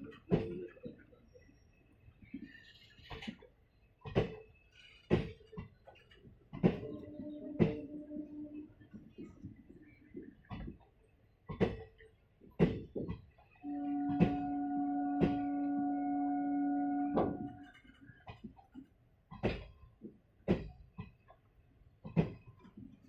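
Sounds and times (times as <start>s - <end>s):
train horn: 6.8s - 9.2s, 13.6s - 18.0s
train wheels knocking over rail joints: 12.6s - 16.0s, 16.9s - 18.5s.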